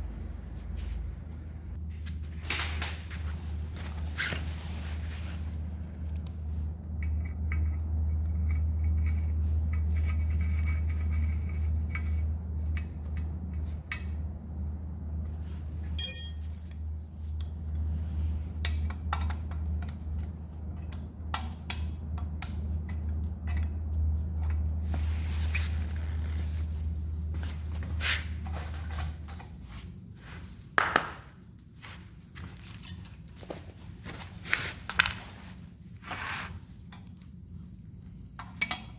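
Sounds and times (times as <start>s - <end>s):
ringing metallic ping: 16.0s - 16.5s
metal parts clinking and scraping: 16.0s - 16.6s.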